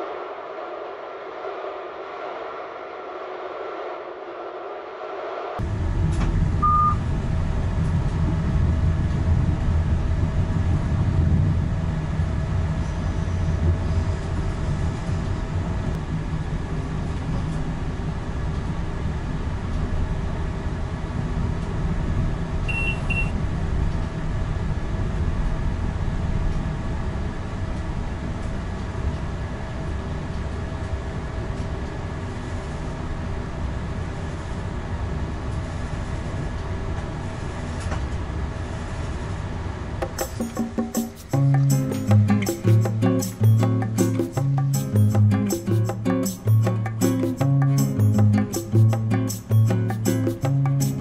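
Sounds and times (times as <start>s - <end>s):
train wheels rumbling on rail: 5.6s - 22.6s
short electronic beeps: 6.6s - 7.0s, 22.7s - 23.4s.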